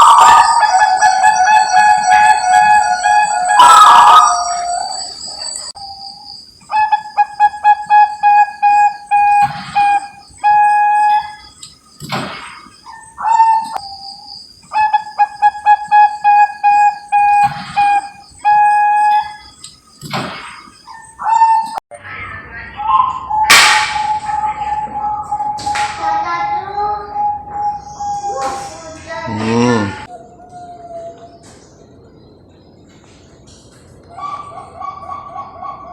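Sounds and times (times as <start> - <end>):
dove cooing: 0.0 - 5.8, 6.7 - 11.3, 12.9 - 13.8, 14.7 - 19.3, 24.0 - 28.8, 34.1 - 35.9.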